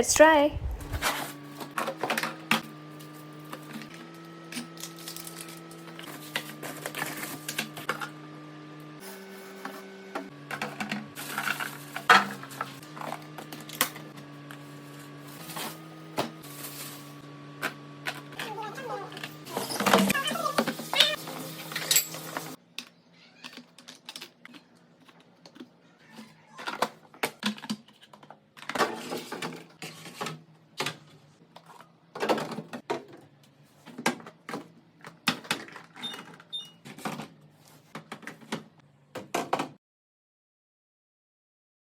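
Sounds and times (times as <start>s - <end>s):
containers clicking and knocking: 21.7s - 29.7s.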